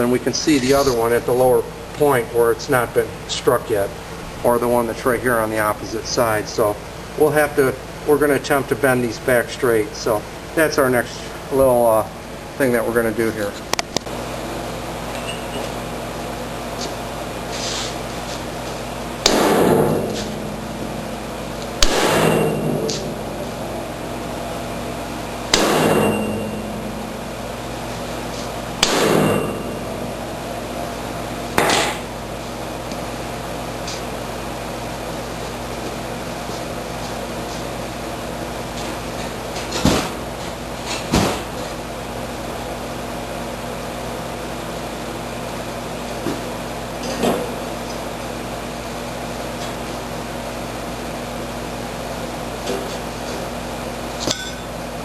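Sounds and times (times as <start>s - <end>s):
steady mechanical hum: 0.0s - 55.0s
sharp knock: 19.2s - 20.4s, 21.8s - 23.1s, 25.5s - 26.7s, 28.8s - 29.8s
hammer striking metal: 19.2s - 20.9s, 21.8s - 23.3s, 25.5s - 27.2s, 28.8s - 30.2s, 54.2s - 54.7s.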